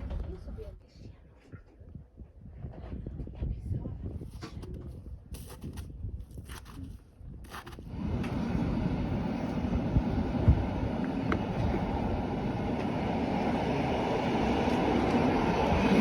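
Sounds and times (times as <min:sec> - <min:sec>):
train wheels rumbling on track: 0:07.9 - 0:16.0.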